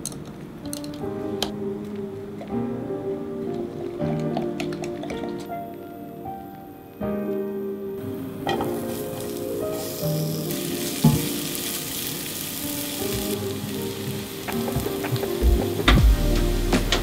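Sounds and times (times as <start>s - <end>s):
light music: 0.0s - 17.0s
shallots sizzling in oil: 8.4s - 16.7s.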